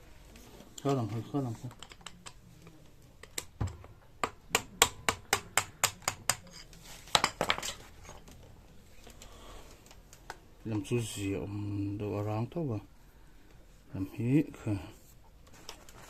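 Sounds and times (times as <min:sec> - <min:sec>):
metallic tool clicks and taps: 0:01.7 - 0:02.4, 0:03.2 - 0:06.6.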